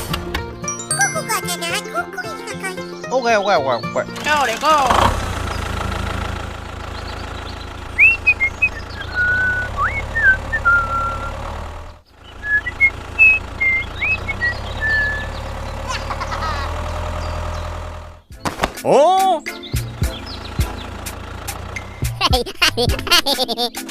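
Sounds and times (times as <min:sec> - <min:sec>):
engine running with low drone: 0:04.0 - 0:18.3, 0:19.6 - 0:23.3
rising whistle-like chirps: 0:08.0 - 0:11.4, 0:12.4 - 0:15.4.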